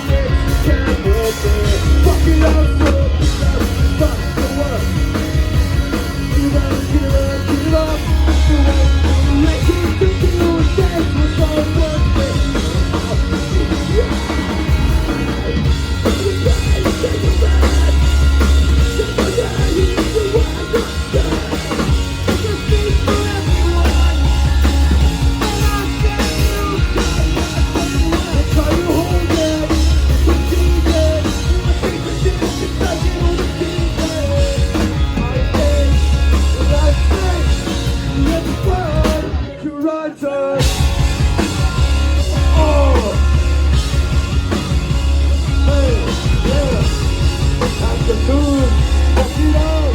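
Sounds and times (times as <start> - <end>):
live rock band playing: 0.0 - 49.9.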